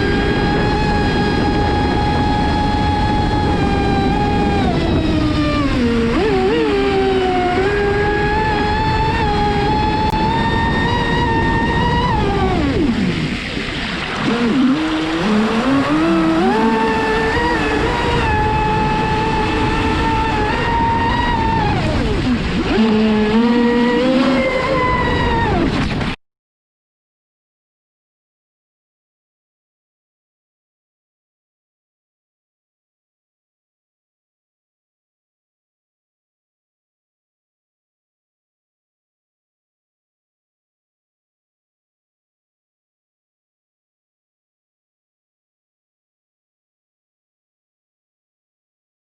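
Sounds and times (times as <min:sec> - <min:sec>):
electric motor whining: 0:00.0 - 0:26.2
rushing water: 0:00.0 - 0:26.2.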